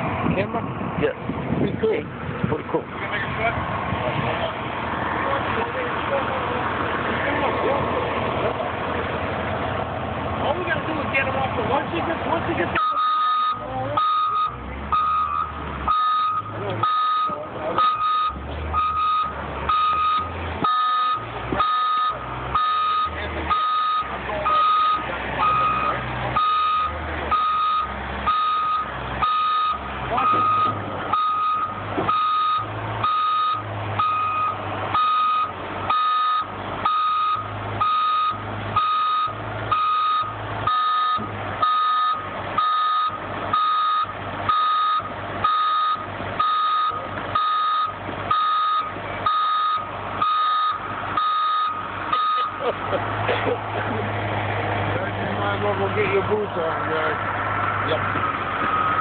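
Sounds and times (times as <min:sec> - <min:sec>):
truck engine running: 0:00.0 - 0:59.0
truck back-up alarm beeping: 0:12.6 - 0:53.6, 0:57.7 - 0:59.0.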